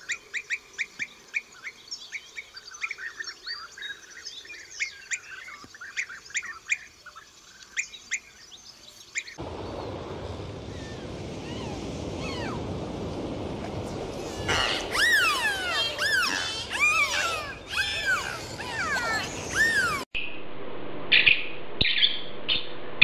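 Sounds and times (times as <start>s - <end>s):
open sea rushing: 9.4s - 20.1s
birds calling rapidly: 14.2s - 20.1s.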